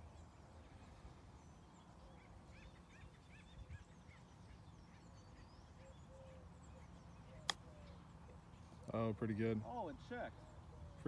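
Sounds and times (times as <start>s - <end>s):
faint bird calls: 0.0s - 11.0s.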